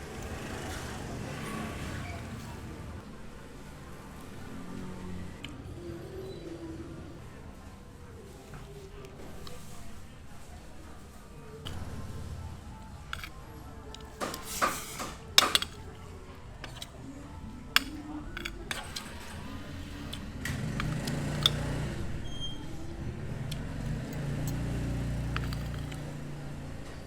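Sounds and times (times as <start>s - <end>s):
dishes and utensils clattering: 13.1s - 17.0s, 17.6s - 21.9s, 25.2s - 26.2s.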